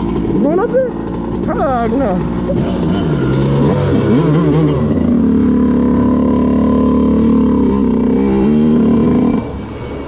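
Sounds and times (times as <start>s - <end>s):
dirt bike engine revving high: 0.0s - 9.7s.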